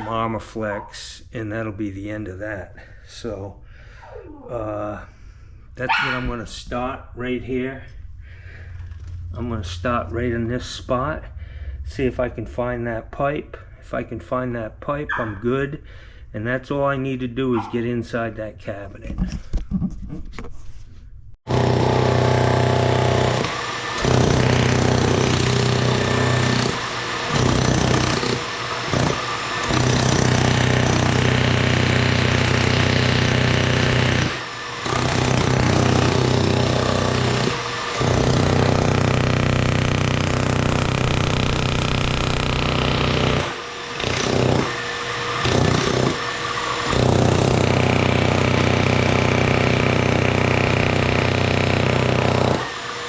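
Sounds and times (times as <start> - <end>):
jackhammer breaking concrete: 21.5 - 53.0.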